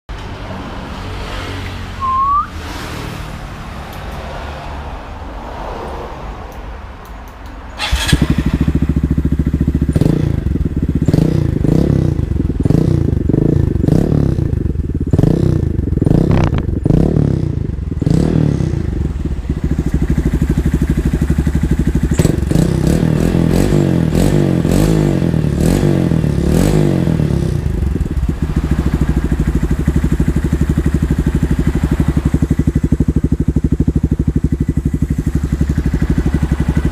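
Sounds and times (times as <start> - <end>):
motorcycle engine revving: 7.8 - 36.9.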